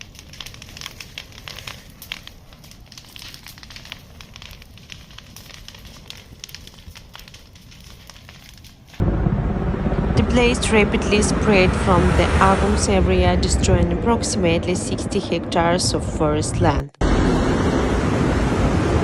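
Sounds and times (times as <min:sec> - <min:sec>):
fire crackling and popping: 0:00.0 - 0:09.0
low fire rumble: 0:00.0 - 0:19.0.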